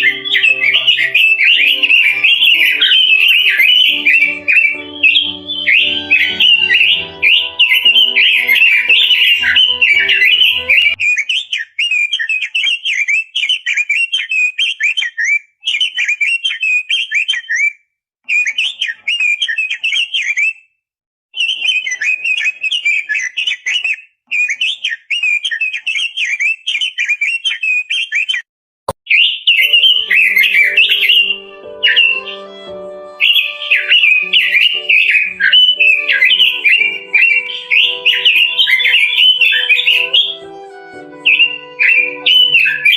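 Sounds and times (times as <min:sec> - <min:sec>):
bird singing warbling song: 0:00.0 - 0:17.7, 0:18.3 - 0:20.6, 0:21.4 - 0:28.4, 0:29.1 - 0:42.9.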